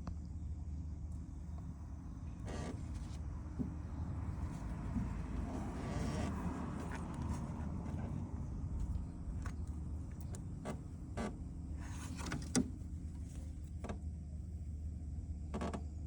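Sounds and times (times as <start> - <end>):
low mechanical hum: 0.0 - 16.0
light clicks and knocks: 2.4 - 8.2.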